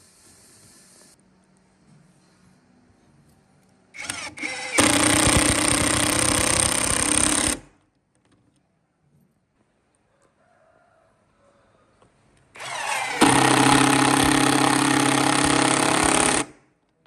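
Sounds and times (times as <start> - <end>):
power tool motor whine: 4.0 - 7.6, 12.6 - 16.5.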